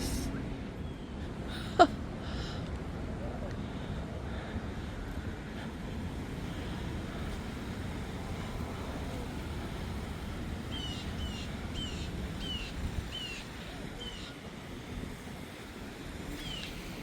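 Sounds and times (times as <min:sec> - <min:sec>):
low outdoor rumble: 0:00.0 - 0:17.0
bird calling: 0:10.7 - 0:14.4, 0:16.4 - 0:16.8.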